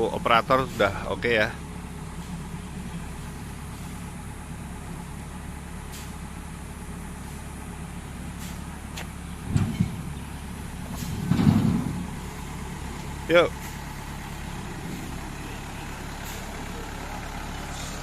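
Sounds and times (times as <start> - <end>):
truck engine idling: 0.0 - 18.0
low thump: 9.4 - 10.2, 10.9 - 12.2.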